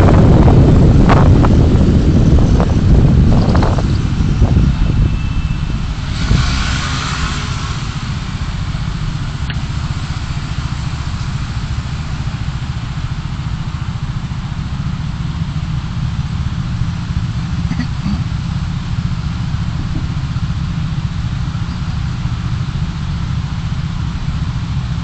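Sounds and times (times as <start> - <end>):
car engine running: 0.0 - 25.0
road noise: 0.0 - 25.0.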